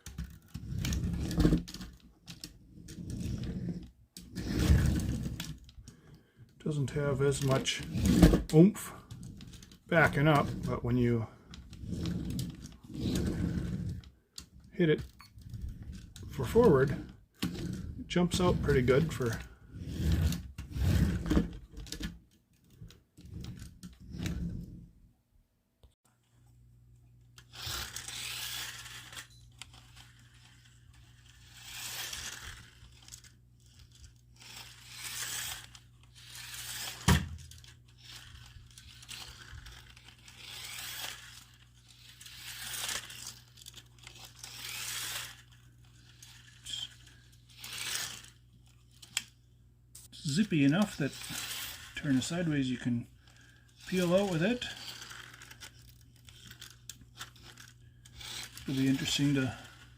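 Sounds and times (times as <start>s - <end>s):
tyres skidding on floor: 16.2s - 21.6s
tiny electric motor rasping: 27.4s - 29.3s, 31.0s - 33.0s, 34.3s - 37.1s, 38.0s - 43.4s, 44.1s - 45.6s, 58.1s - 59.7s.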